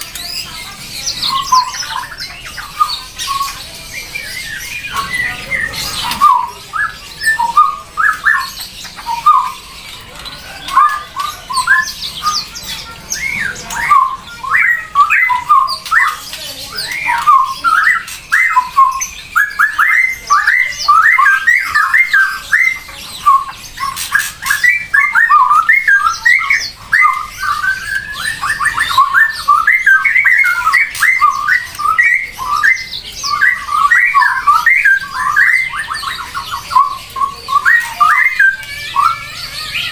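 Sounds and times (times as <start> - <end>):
bird chirping and squawking: 0.0 - 39.9.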